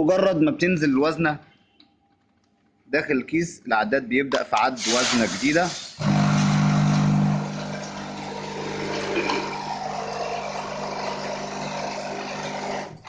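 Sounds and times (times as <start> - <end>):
filling machine hum: 6.0 - 13.0.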